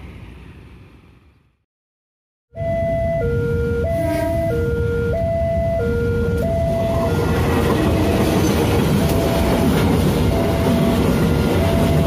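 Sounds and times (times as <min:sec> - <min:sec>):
level crossing alarm two-tone: 0:02.5 - 0:07.4, 0:09.0 - 0:12.0
freight train wheel noise: 0:06.3 - 0:12.0.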